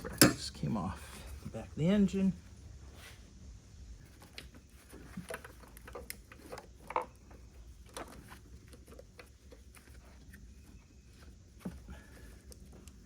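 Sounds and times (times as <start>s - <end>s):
hand tools clicking and knocking: 0.0s - 0.6s.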